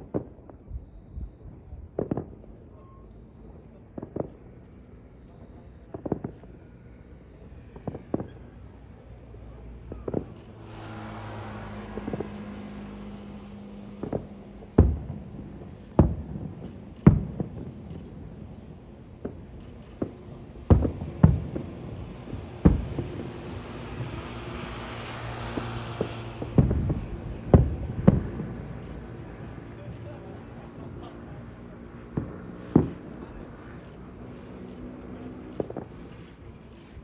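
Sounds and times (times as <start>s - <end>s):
fireworks booming: 0.0s - 2.8s, 3.6s - 4.7s, 5.3s - 6.6s, 7.8s - 31.1s, 31.8s - 33.6s, 34.4s - 37.0s
crackling hiss: 5.8s - 30.5s.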